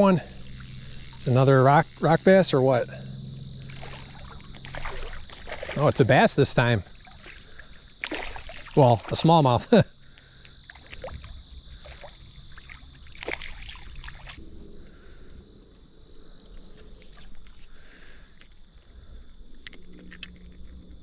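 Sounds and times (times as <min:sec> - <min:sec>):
high insect drone: 0:00.0 - 0:21.0
water sloshing: 0:03.5 - 0:14.4.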